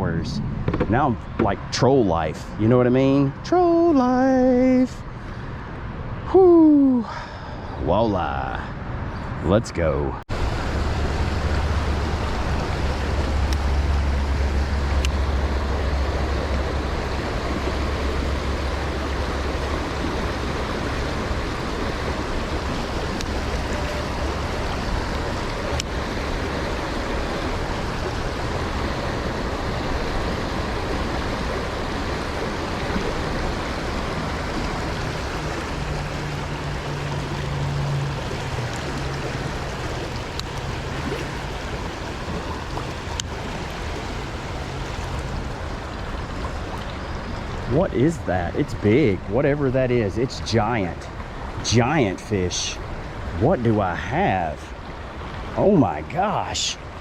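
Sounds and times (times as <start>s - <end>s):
low rumble: 0.0s - 1.7s
river current rushing: 10.3s - 57.0s.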